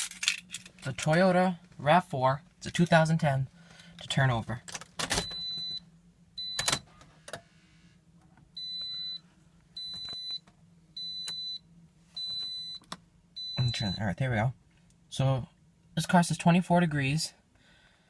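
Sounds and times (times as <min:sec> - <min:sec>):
dashboard warning chime beeping: 0:05.2 - 0:06.9, 0:08.5 - 0:14.2.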